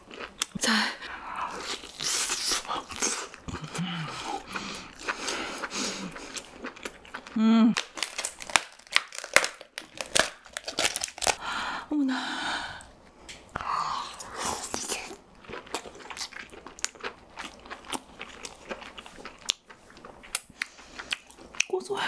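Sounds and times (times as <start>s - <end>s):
chewing and mouth clicks: 1.6s - 8.5s, 14.7s - 21.8s.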